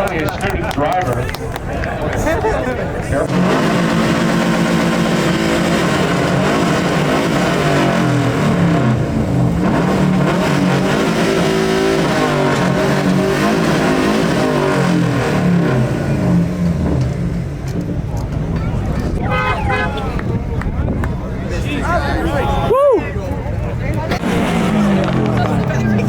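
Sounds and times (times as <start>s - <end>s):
car engine revving: 3.1s - 20.1s, 23.9s - 26.0s.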